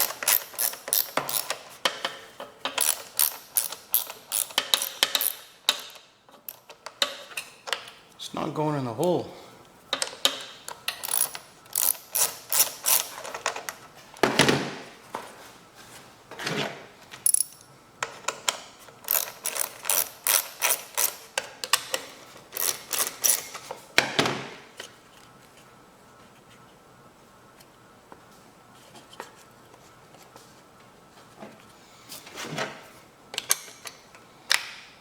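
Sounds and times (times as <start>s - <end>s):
ratchet wrench clicking: 0.0s - 2.1s, 2.7s - 7.2s, 10.9s - 13.4s, 19.1s - 21.3s, 22.6s - 23.5s.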